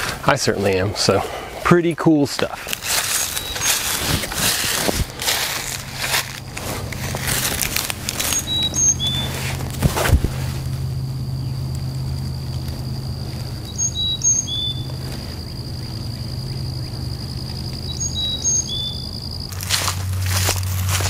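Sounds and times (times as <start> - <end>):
steady low hum: 0.0 - 21.0
songbird chirping: 2.4 - 4.1, 5.2 - 9.6, 10.8 - 21.0
rustling: 2.6 - 10.8, 19.5 - 21.0.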